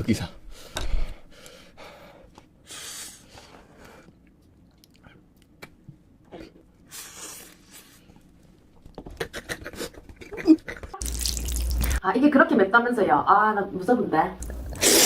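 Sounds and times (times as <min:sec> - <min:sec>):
person chewing crunchy food: 0:11.0 - 0:12.0.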